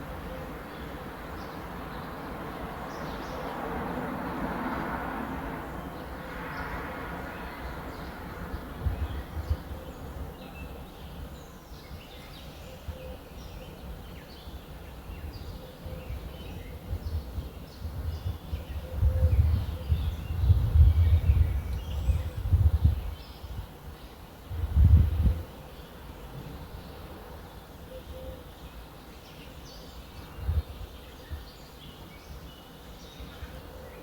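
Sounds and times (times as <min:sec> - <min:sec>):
wind gusts buffeting microphone: 0:06.4 - 0:11.4, 0:15.1 - 0:23.8, 0:24.4 - 0:25.6, 0:30.2 - 0:31.4
small birds chirping: 0:07.4 - 0:34.0.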